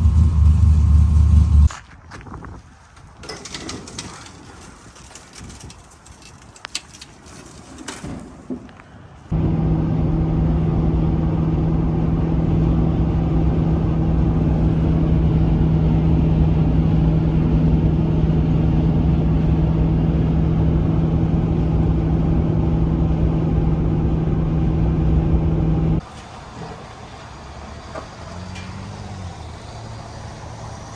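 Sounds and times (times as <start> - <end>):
vehicle engine droning: 0.0 - 1.7, 9.3 - 30.9.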